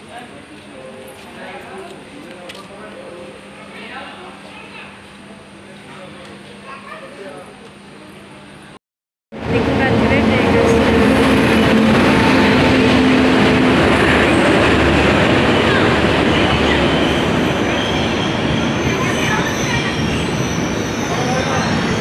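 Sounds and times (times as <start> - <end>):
locomotive hum: 9.4 - 22.0
train rolling past rumble: 9.4 - 22.0.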